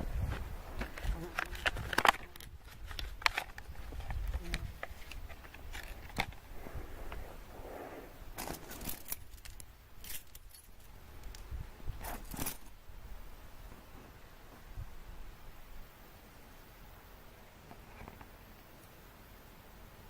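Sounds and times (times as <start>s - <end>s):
handling clicks and scrapes: 0.0s - 11.4s, 12.0s - 12.8s, 17.7s - 18.4s.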